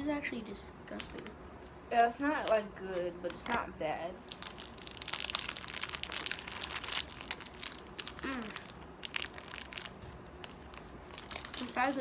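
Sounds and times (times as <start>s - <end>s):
plastic packaging crinkling: 0.9s - 1.3s, 4.2s - 12.0s.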